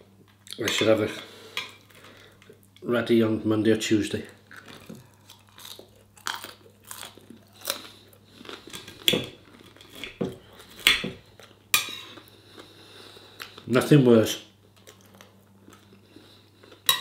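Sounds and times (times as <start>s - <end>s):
chewing and crunching: 4.2s - 13.7s, 14.6s - 17.0s.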